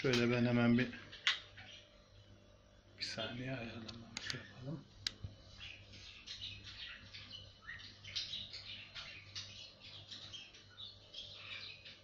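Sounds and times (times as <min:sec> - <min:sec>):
steady low hum: 0:00.0 - 0:12.0
small bird chirping: 0:01.1 - 0:02.4, 0:05.4 - 0:12.0.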